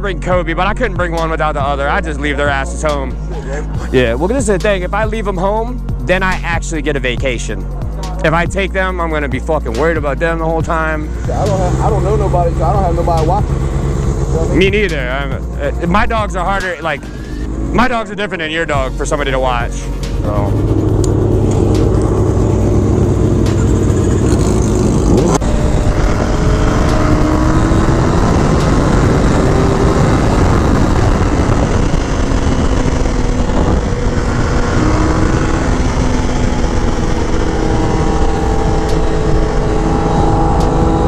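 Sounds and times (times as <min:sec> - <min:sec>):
motorcycle engine running: 0:00.0 - 0:41.0
wind noise: 0:12.6 - 0:41.0.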